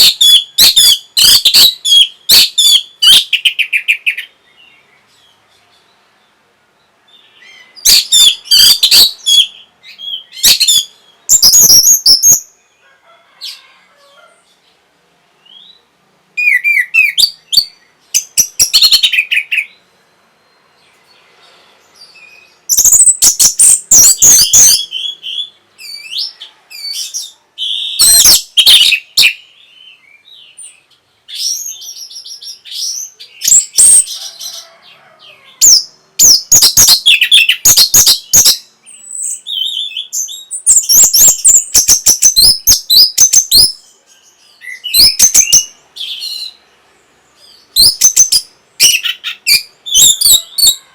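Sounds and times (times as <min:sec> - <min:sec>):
thrush singing whistles and clicks: 0:07.9 - 0:12.5, 0:22.7 - 0:29.4, 0:33.4 - 0:34.1, 0:35.6 - 0:43.8, 0:44.6 - 0:46.5, 0:47.8 - 0:50.8.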